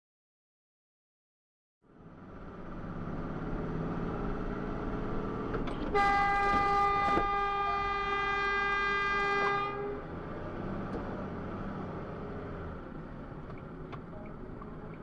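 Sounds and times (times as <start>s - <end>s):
engine and road noise: 1.8s - 15.0s
vehicle horn blast: 5.9s - 10.0s.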